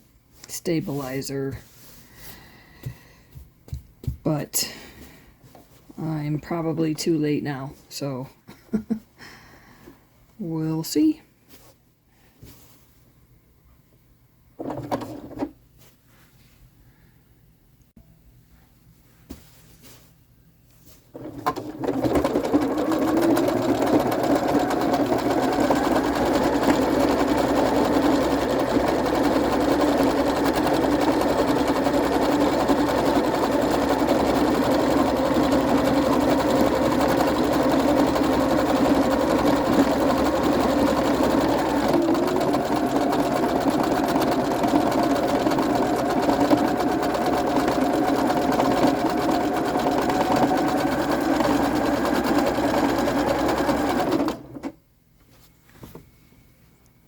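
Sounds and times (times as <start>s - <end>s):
sewing machine running: 21.2s - 54.7s.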